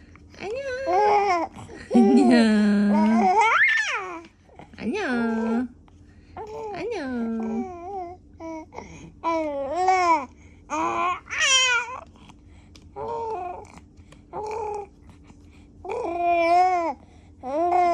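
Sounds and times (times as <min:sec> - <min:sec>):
baby cooing and babbling: 0:00.9 - 0:02.4, 0:03.0 - 0:04.3, 0:07.4 - 0:12.1, 0:13.0 - 0:14.9, 0:15.8 - 0:17.9.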